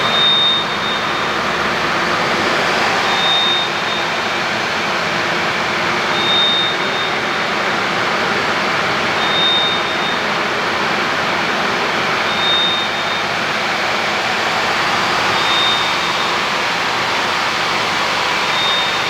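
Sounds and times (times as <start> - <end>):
high beeps: 0.0 - 1.9, 3.1 - 4.2.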